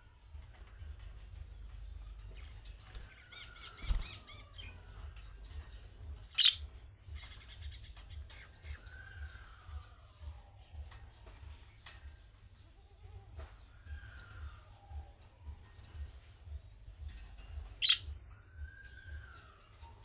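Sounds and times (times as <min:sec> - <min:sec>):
budgerigars chirping and warbling: 0:02.0 - 0:09.9, 0:17.1 - 0:20.0.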